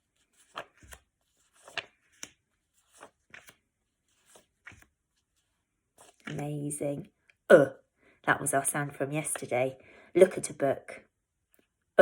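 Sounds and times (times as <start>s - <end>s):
paper cards rustling and tapping: 0.0s - 6.6s.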